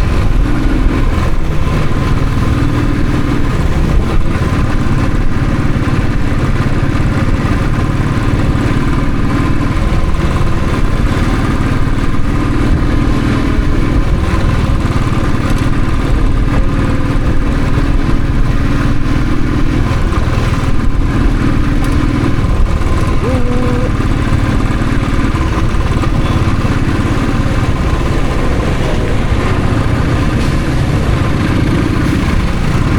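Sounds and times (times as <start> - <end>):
motorcycle engine running: 0.0 - 32.9
rushing noise: 0.0 - 32.9.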